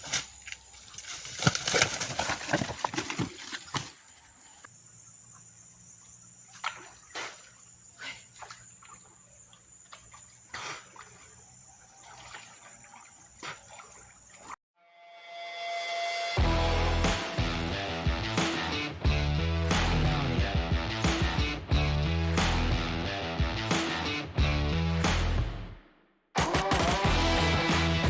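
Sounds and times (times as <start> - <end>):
insects droning: 0.0 - 14.6.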